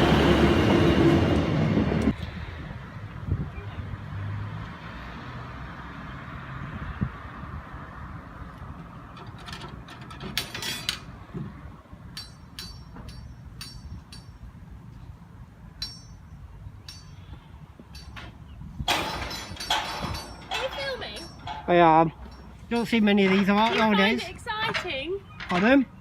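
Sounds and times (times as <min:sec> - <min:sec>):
sharp metallic clinks: 0:12.1 - 0:14.5, 0:15.8 - 0:25.8.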